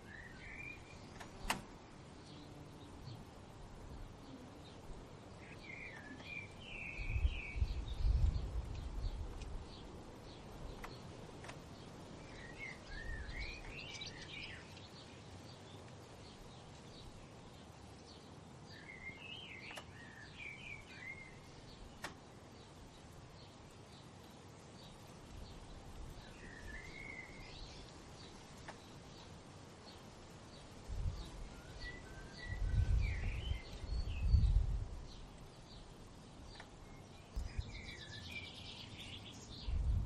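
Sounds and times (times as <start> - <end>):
low wind rumble: 0.0 - 19.3, 20.0 - 40.0
songbird singing: 0.0 - 40.0
faint bird chirps: 3.9 - 11.1, 11.8 - 17.7, 18.7 - 22.2, 26.1 - 30.1, 31.0 - 35.9, 36.5 - 39.9.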